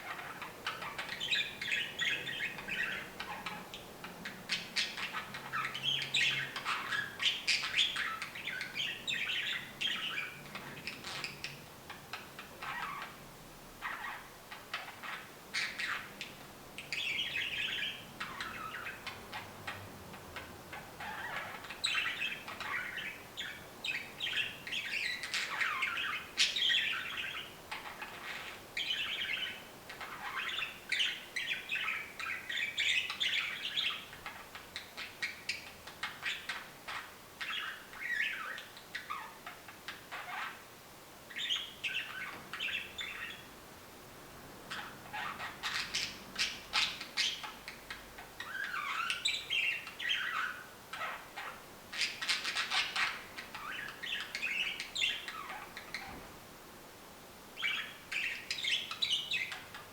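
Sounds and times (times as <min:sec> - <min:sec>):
budgerigar chirping and warbling: 0:00.0 - 0:11.6, 0:12.6 - 0:13.2, 0:13.8 - 0:16.3, 0:21.0 - 0:39.4, 0:44.7 - 0:56.1.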